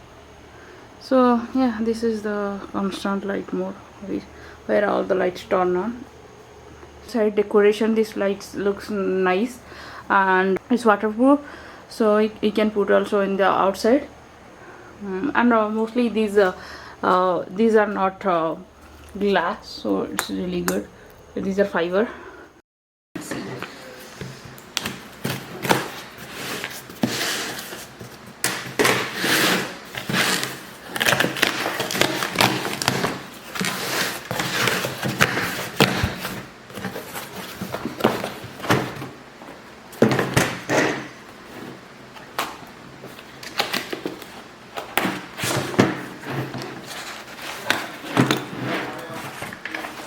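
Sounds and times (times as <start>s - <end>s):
objects rustling and clattering: 23.2s - 50.0s.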